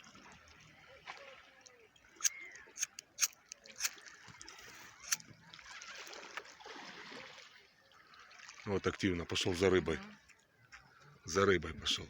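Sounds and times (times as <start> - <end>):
sea water splashing and sloshing: 0.0 - 12.0.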